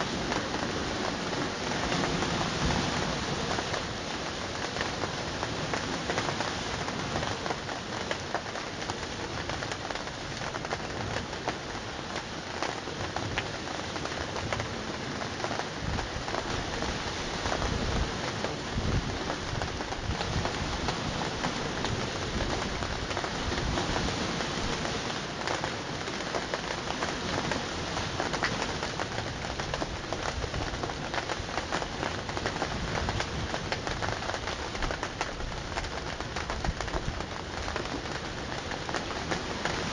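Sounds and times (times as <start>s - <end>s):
heavy rain: 0.0s - 39.9s
low rumble of wind or thunder: 14.4s - 39.9s.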